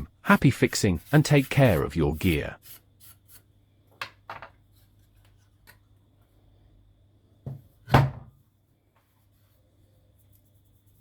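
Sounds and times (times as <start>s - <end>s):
thump: 7.4s - 8.3s.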